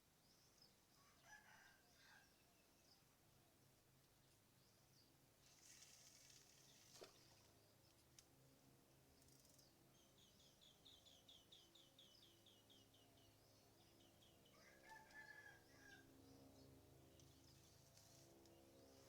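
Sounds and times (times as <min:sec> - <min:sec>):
rooster crowing: 0:01.0 - 0:02.3, 0:14.5 - 0:16.1.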